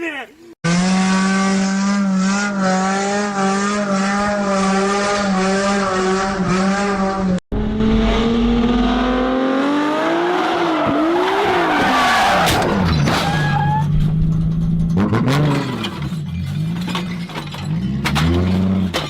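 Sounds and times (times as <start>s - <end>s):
vehicle with sweeping pitch: 0.6s - 11.6s
car tyres squealing: 10.2s - 14.3s.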